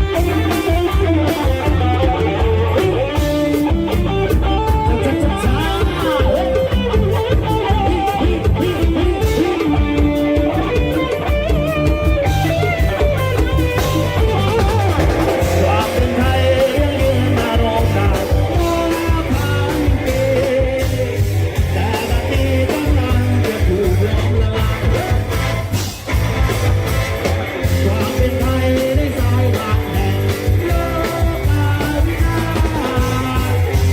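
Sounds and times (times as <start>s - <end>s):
heavy bass and drum beat: 0.0s - 33.9s
wavering guitar melody: 0.0s - 33.9s
person singing: 0.1s - 11.1s, 13.8s - 25.4s, 27.6s - 33.9s.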